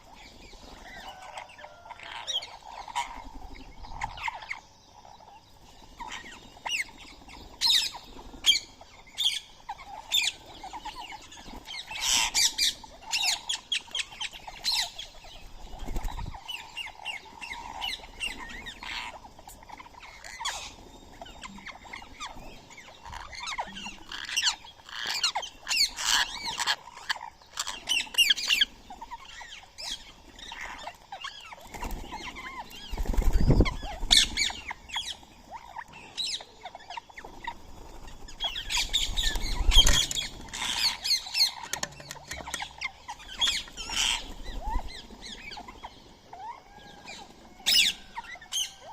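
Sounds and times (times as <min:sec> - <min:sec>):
parakeets squawking: 0:07.6 - 0:15.2, 0:16.8 - 0:37.6, 0:38.4 - 0:48.9.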